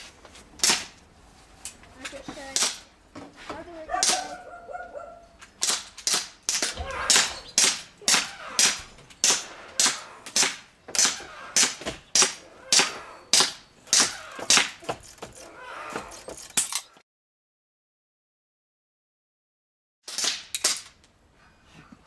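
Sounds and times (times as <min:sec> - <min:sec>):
airsoft pistol shots: 0:05.6 - 0:12.4.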